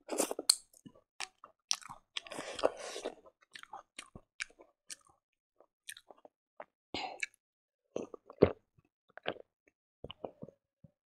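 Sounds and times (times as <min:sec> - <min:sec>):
close-up chewing: 0:01.2 - 0:05.2.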